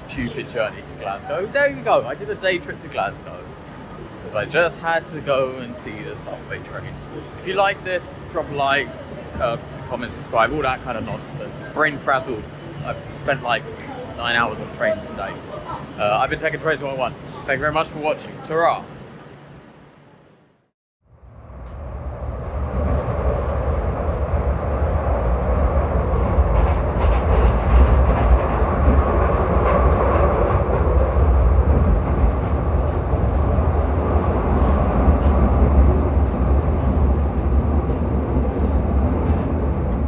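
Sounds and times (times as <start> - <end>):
train rumbling on rails: 21.2 - 40.0.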